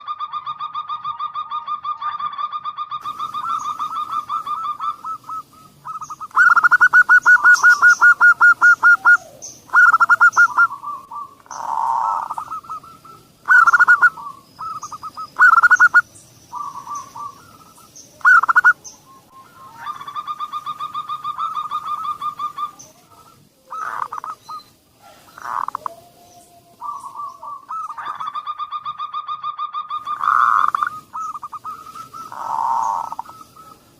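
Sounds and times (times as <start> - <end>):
doves cooing trills: 0.0 - 33.9.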